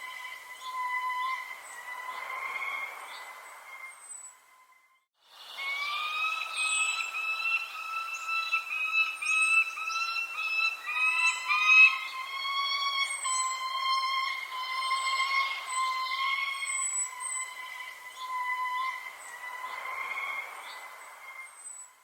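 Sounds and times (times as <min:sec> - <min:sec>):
bird whistling repeated notes: 0:00.0 - 0:22.0
high falling bird chirps: 0:05.4 - 0:22.0.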